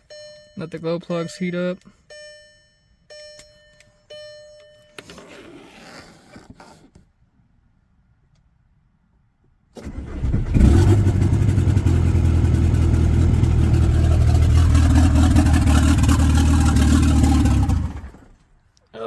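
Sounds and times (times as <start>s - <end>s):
diesel engine cranking and running: 9.8s - 18.5s.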